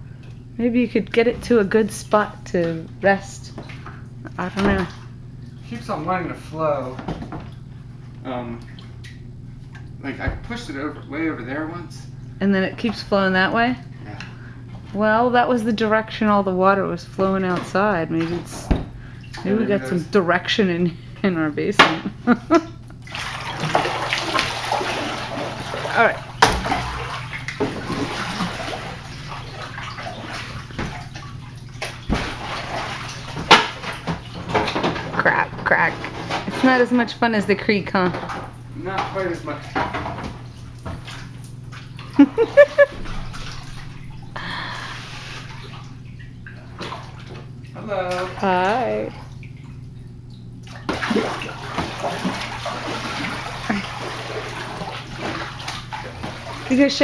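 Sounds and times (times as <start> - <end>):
low steady hum: 0.0 - 57.0
water splashing and sloshing: 0.0 - 57.0
paddle splashing through water: 23.1 - 34.8
sharp knocks: 26.4 - 27.1.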